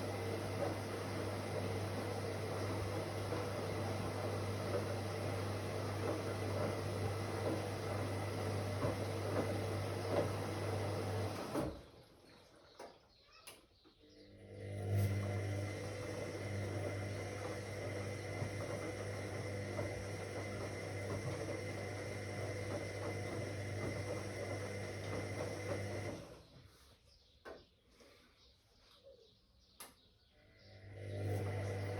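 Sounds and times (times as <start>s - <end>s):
washing machine drum turning: 0.0s - 11.8s, 15.3s - 26.2s.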